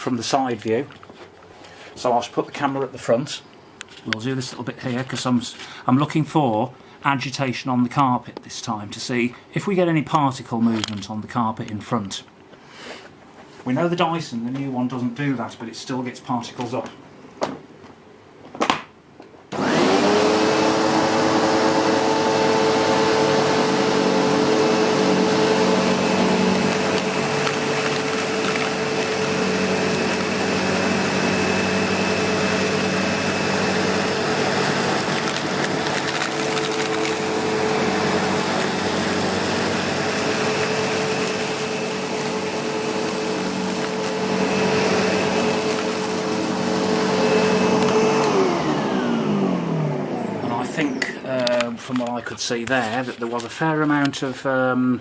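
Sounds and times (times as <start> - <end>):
vacuum cleaner running: 19.5 - 52.0.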